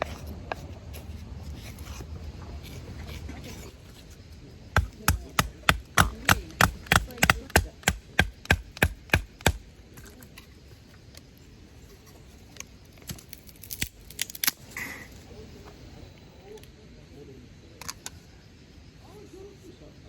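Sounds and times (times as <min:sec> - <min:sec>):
knife chopping on cutting board: 0:04.8 - 0:09.6.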